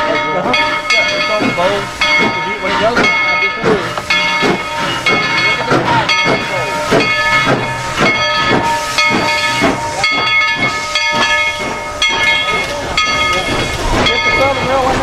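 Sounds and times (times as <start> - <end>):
steam hissing: 0.0 - 15.0
steam locomotive chuffing: 0.0 - 15.0.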